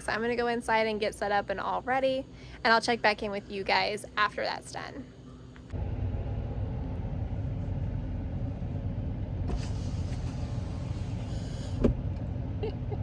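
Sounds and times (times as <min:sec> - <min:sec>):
truck engine rumbling: 0:05.7 - 0:13.0.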